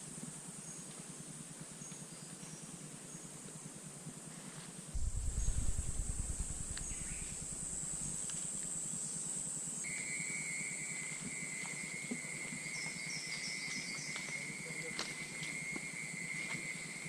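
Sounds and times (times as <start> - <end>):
low rumble: 5.0 - 8.8
high-pitched insect trill: 5.0 - 17.0
lower-pitched insect call: 5.0 - 17.0.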